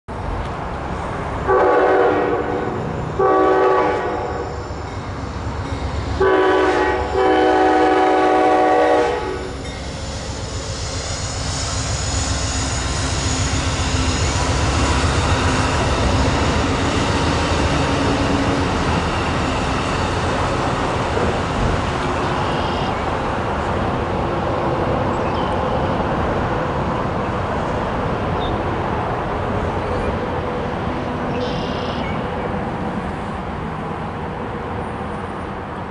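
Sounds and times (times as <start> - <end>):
train wheels rumbling on rail: 0.1 - 35.9
locomotive air horn blasts: 1.5 - 4.6, 6.2 - 9.6.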